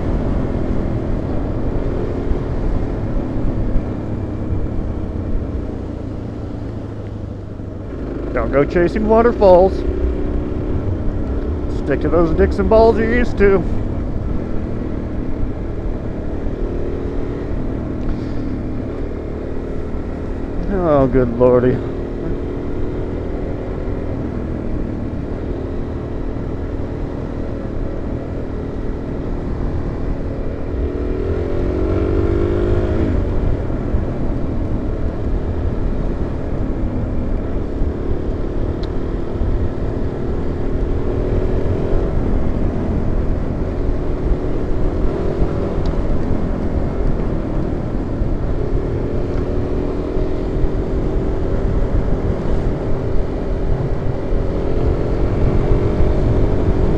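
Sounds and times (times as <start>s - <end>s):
wind rumble: 0.0s - 20.7s
motorcycle engine running: 0.0s - 56.9s.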